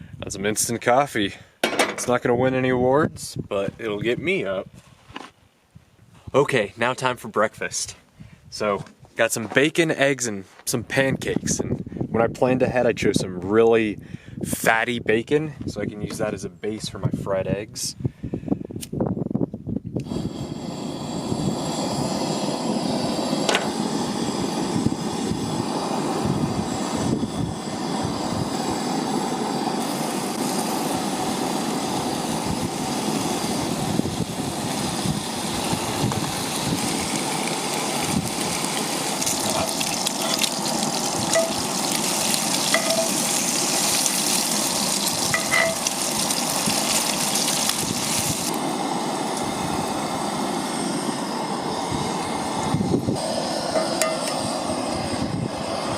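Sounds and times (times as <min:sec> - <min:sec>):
bacon sizzling in a skillet: 0:29.8 - 0:48.6.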